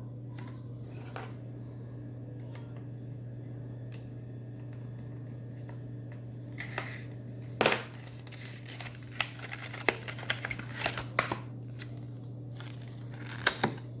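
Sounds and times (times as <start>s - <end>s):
low electrical hum: 0.0s - 14.0s
packaging crinkling: 7.9s - 13.9s.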